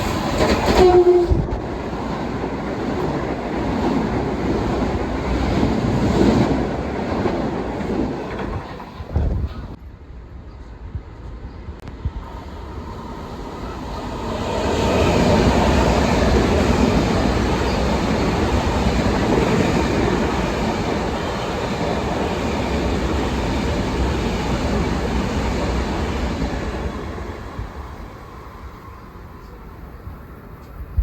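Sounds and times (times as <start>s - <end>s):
train rumbling past on tracks: 0.0s - 31.0s.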